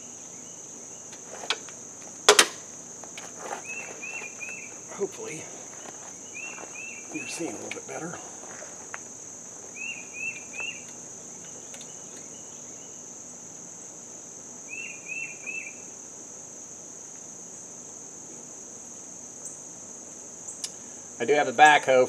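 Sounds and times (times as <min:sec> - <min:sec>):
high-pitched insect trill: 0:00.0 - 0:22.0
bird chirps: 0:03.5 - 0:08.9, 0:09.7 - 0:13.0.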